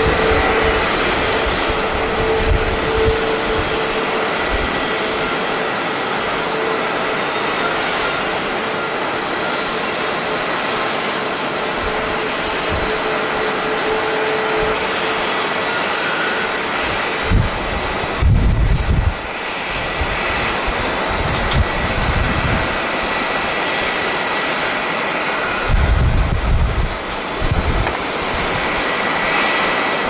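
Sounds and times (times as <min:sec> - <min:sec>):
wind buffeting microphone: 0:00.0 - 0:07.1, 0:07.9 - 0:15.6, 0:16.4 - 0:24.5, 0:25.1 - 0:30.0
jet engine rushing: 0:00.0 - 0:30.0.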